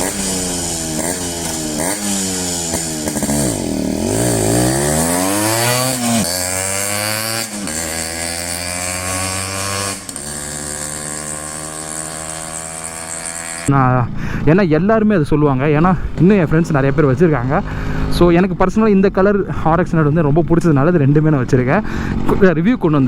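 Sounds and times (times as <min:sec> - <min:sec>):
two-stroke motorcycle engine: 0:00.0 - 0:13.7, 0:16.0 - 0:18.6, 0:21.8 - 0:22.4.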